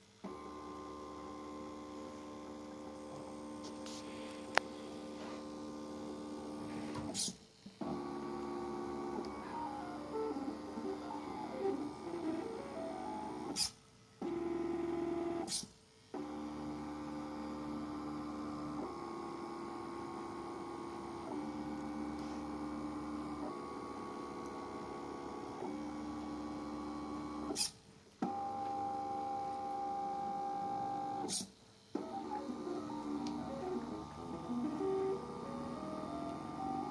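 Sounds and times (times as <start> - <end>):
stepper motors whining: 5.9 - 13.7, 32.0 - 36.9.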